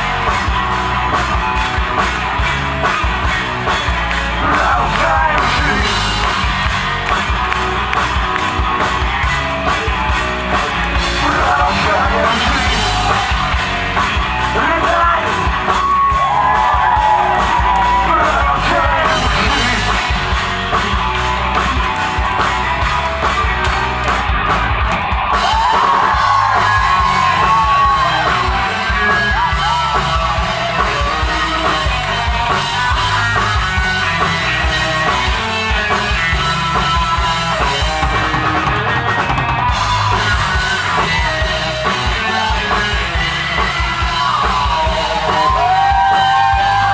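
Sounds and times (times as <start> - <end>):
rock band playing: 0.0 - 46.9
person singing and shouting: 4.2 - 6.5, 11.0 - 21.0, 25.4 - 33.5.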